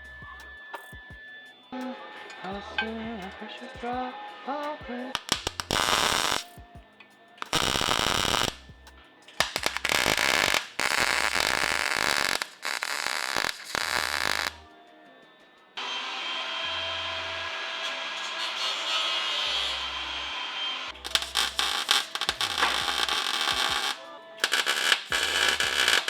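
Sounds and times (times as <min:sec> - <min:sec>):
electric arc hissing: 0:05.2 - 0:06.5, 0:07.5 - 0:08.6, 0:09.4 - 0:14.6, 0:20.9 - 0:26.0.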